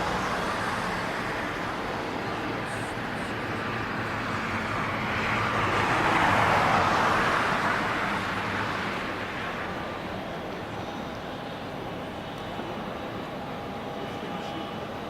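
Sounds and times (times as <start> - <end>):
vehicle passing close by: 0.0 - 9.7
road traffic noise: 0.0 - 15.0.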